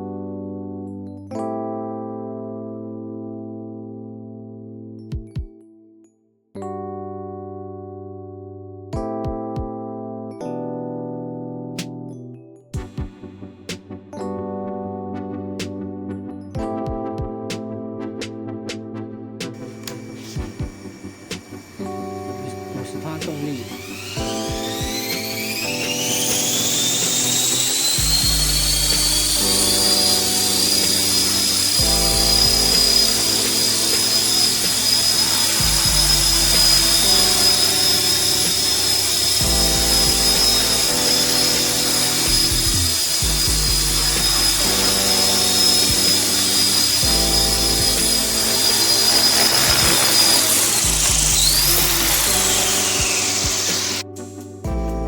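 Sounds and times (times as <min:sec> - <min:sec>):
background music: 0:00.0 - 0:55.0
rc helicopter motor whine: 0:19.6 - 0:54.0.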